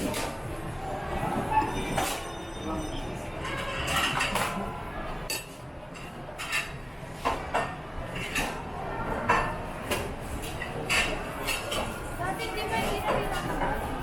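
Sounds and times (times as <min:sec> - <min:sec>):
cutlery clinking against plates: 0:01.8 - 0:02.5, 0:03.4 - 0:12.0.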